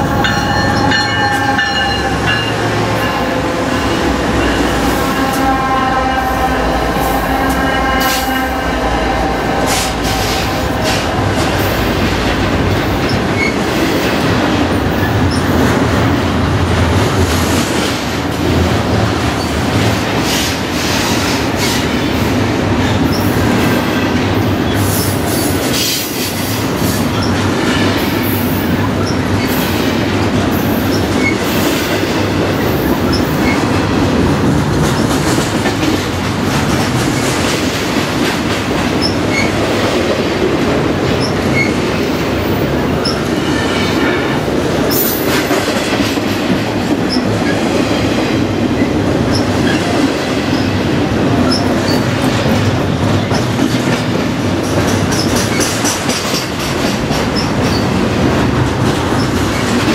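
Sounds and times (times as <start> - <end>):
diesel locomotive engine: 0.0 - 59.9
wheels clacking over rail joints: 21.3 - 59.9.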